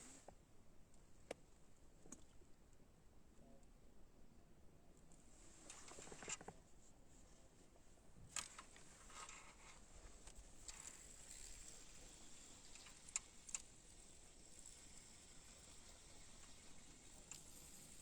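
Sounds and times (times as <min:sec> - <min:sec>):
low hiss: 0:05.1 - 0:18.0.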